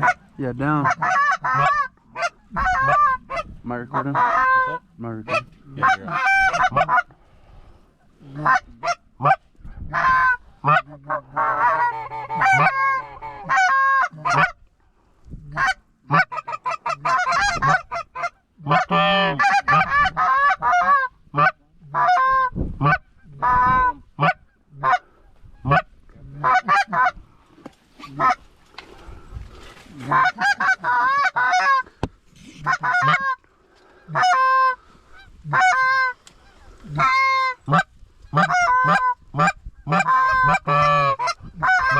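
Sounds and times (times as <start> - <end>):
geese honking: 0.0 - 7.2, 8.3 - 14.6, 15.6 - 27.2, 28.0 - 28.5, 29.9 - 41.9.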